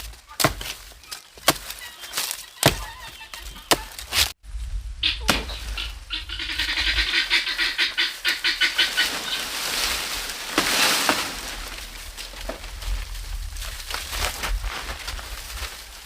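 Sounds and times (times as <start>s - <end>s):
bird quacking calls: 0.2s - 4.2s, 5.0s - 9.6s.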